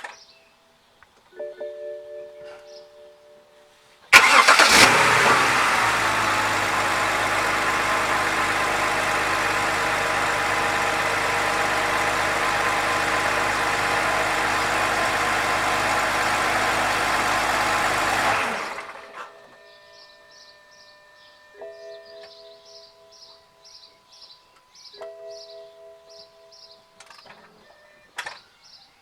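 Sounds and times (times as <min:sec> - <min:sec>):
car engine starting and idling: 0:04.1 - 0:19.4.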